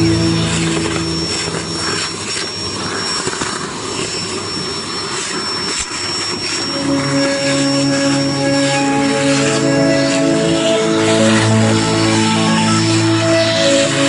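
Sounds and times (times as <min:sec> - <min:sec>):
faint music: 0:00.0 - 0:03.1, 0:06.6 - 0:14.0
vacuum cleaner running: 0:00.0 - 0:14.0.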